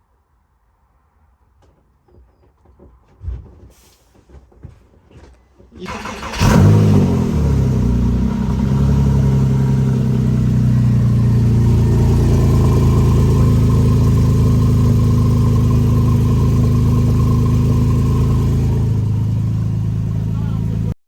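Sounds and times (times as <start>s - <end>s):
car engine idling: 5.9s - 21.0s.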